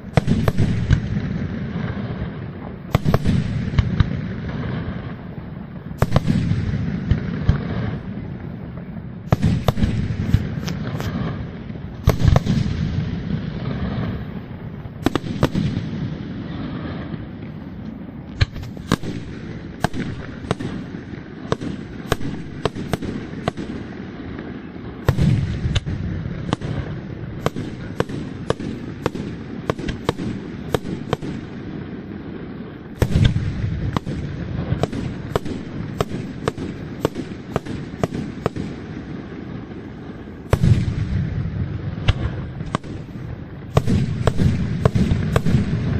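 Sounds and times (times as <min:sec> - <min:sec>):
booming firework bursts: 0:00.0 - 0:45.9
firework shell bursts and cracks: 0:09.3 - 0:11.3, 0:17.8 - 0:23.9.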